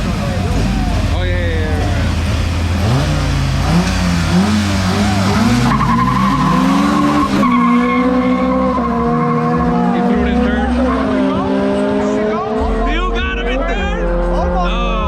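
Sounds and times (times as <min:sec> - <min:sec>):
race cars accelerating hard: 0:00.0 - 0:15.0.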